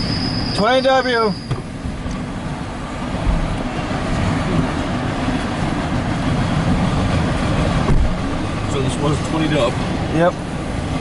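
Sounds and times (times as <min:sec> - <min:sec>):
freight train rumbling on rails: 0:00.0 - 0:11.0.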